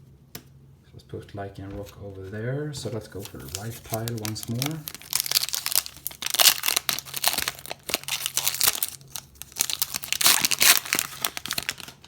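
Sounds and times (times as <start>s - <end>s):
foil wrapper crinkling and tearing: 3.0s - 12.0s.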